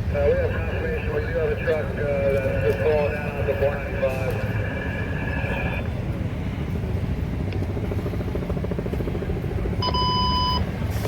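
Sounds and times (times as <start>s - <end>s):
heavy vehicle engine rumbling: 0.0s - 11.0s
traffic: 0.0s - 11.0s
short electronic beep: 9.8s - 10.6s.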